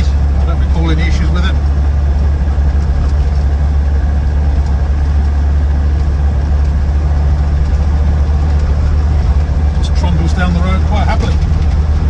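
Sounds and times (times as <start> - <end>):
diesel engine low drone: 0.0 - 12.0
road noise: 0.0 - 12.0.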